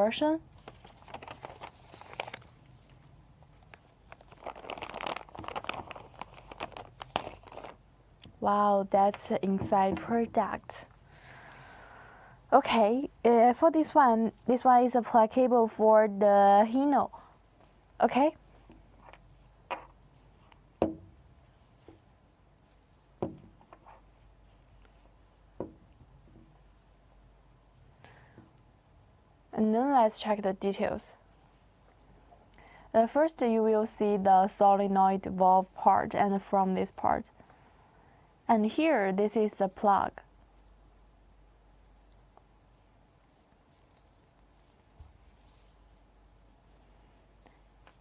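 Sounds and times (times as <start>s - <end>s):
plastic bags crinkling: 0.6s - 3.0s, 3.6s - 7.8s
object knocking on tabletop: 20.8s - 21.1s.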